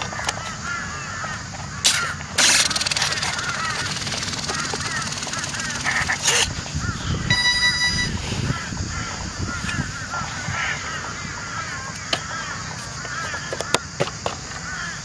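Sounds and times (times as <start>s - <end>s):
flock of birds calling: 0.0s - 15.0s
sharp clicks: 1.9s - 6.5s
electronic beep: 7.3s - 8.4s.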